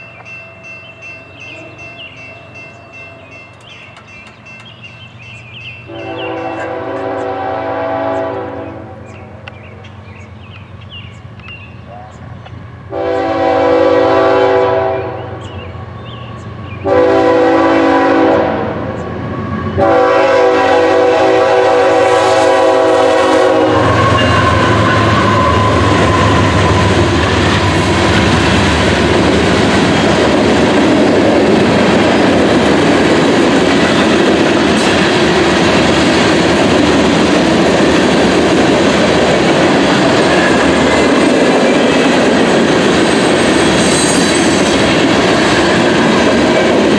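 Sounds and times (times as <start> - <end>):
train rolling past: 0.0 - 46.9
locomotive horn blasts: 5.9 - 9.1, 12.9 - 15.5, 16.8 - 19.0, 19.8 - 28.4.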